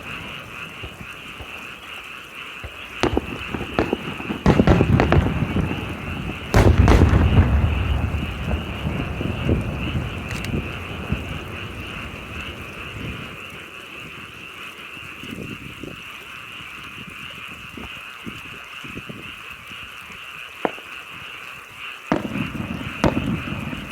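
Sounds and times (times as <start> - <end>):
frogs trilling chorus: 0.0 - 23.9
sharp crack: 2.6 - 13.4, 22.1 - 23.9.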